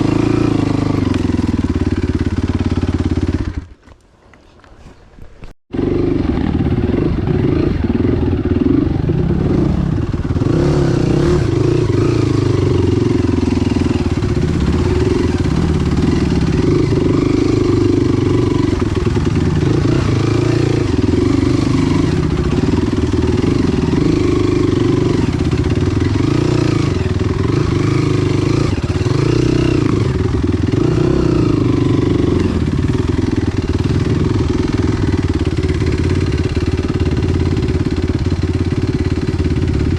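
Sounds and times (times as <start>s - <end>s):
motorcycle engine revving: 0.0s - 3.9s, 5.7s - 39.9s.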